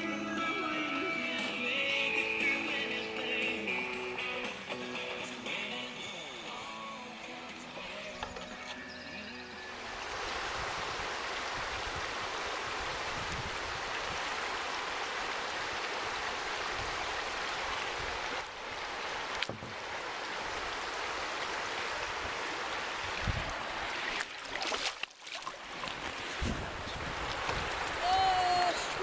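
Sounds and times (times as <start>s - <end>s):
river water rushing: 0.0s - 29.0s
sharp knocks on kayak: 19.4s - 19.8s.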